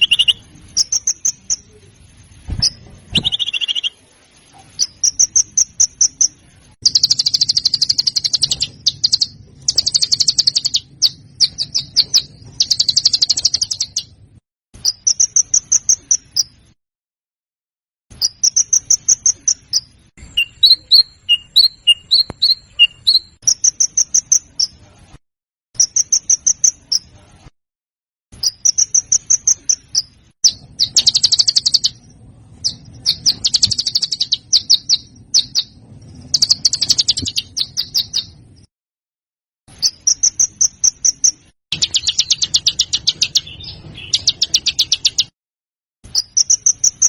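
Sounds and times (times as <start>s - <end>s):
songbird high trilled singing: 0.0s - 1.8s, 2.6s - 4.0s, 4.8s - 14.2s, 14.8s - 16.6s, 18.2s - 24.8s, 28.4s - 32.0s, 32.6s - 38.4s, 39.8s - 45.3s, 46.1s - 47.0s.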